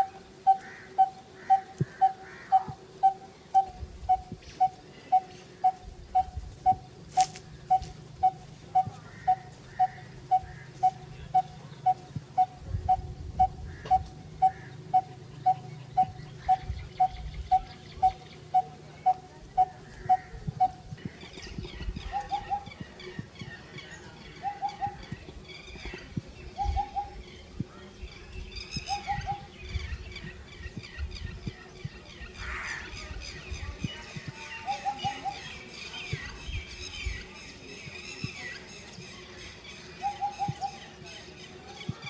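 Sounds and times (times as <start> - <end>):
higher bird chirps: 7.6 - 27.4.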